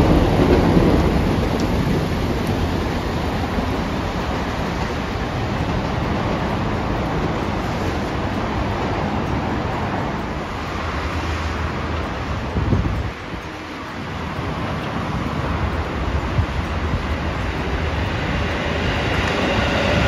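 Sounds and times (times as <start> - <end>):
city traffic: 0.0 - 20.0
electric train running past: 0.0 - 20.0
rain hiss: 0.0 - 20.0.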